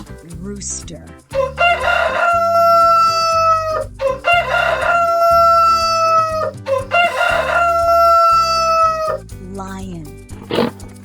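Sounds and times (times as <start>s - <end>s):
rooster crowing: 1.3s - 9.2s.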